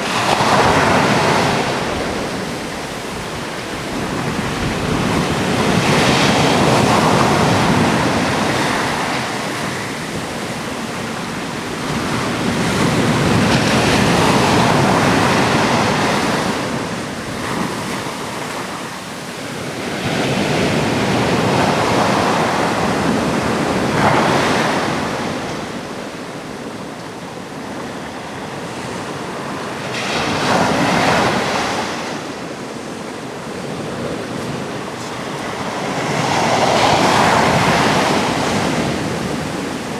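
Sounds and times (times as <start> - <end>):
wind on microphone: 0.0 - 26.2
waves breaking on rocks: 28.8 - 39.9.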